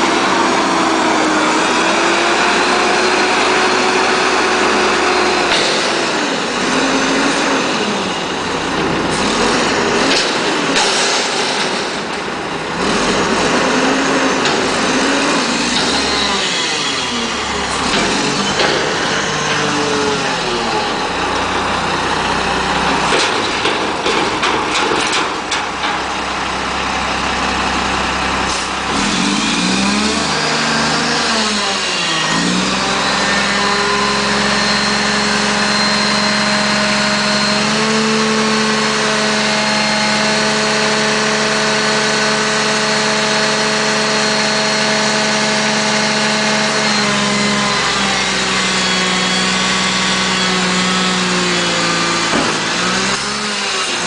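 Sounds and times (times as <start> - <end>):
garbage truck diesel engine: 0.0 - 54.0.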